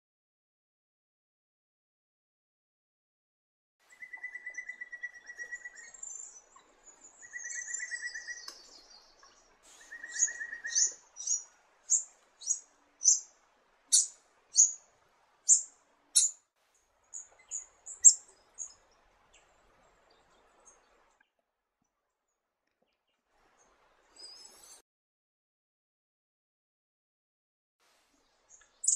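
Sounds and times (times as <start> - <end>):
high bird twittering: 4.0 - 13.3, 13.9 - 14.8, 15.5 - 16.4, 17.1 - 18.8, 28.5 - 28.9
sharp high bird chirps: 9.8 - 13.3, 13.9 - 14.8, 15.5 - 16.4.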